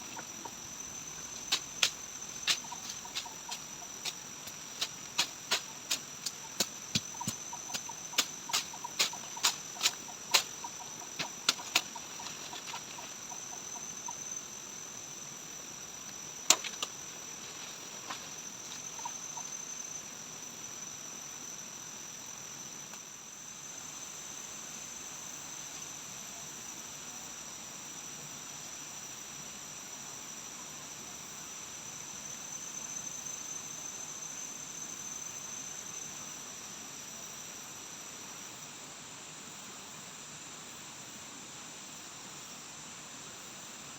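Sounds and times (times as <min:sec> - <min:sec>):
background hiss: 0:00.0 - 0:43.9
insects droning: 0:00.0 - 0:43.9.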